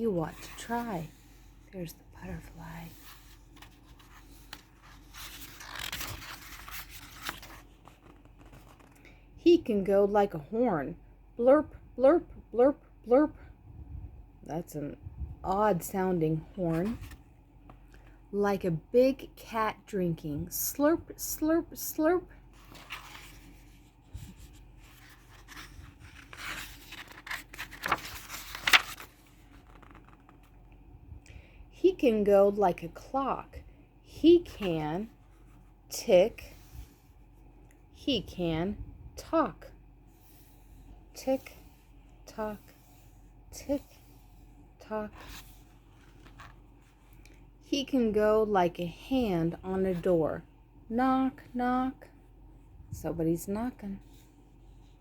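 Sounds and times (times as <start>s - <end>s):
book pages turning: 2.3s - 9.0s, 16.6s - 17.2s, 22.5s - 30.8s, 43.8s - 47.5s.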